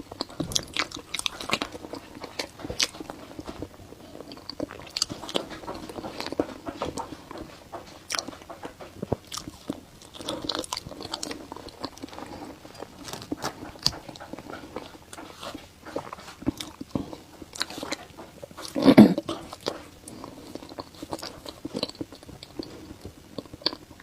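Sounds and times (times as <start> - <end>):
person chewing meat: 0.0 - 24.0.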